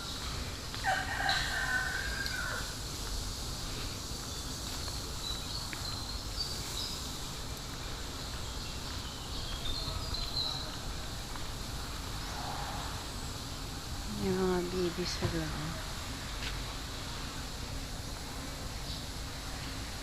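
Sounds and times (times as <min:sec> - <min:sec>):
faint high chirping calls: 0:04.2 - 0:11.3.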